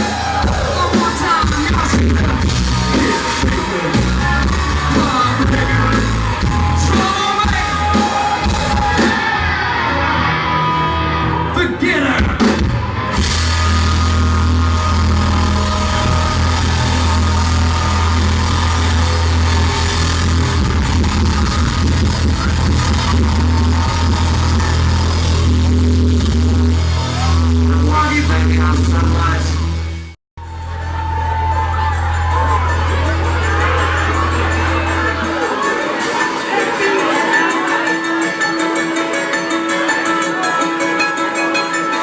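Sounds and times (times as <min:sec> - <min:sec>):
live country rock band: 0:00.0 - 0:29.9
deep steady bass tone: 0:13.2 - 0:35.2.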